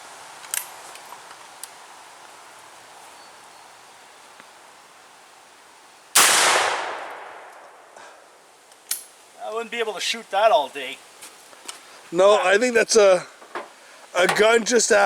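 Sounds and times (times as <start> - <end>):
shotgun blast: 6.2 - 7.7.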